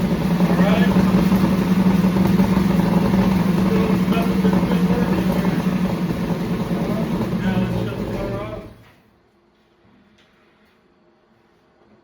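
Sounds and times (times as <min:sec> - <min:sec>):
car engine running steadily: 0:00.0 - 0:08.6.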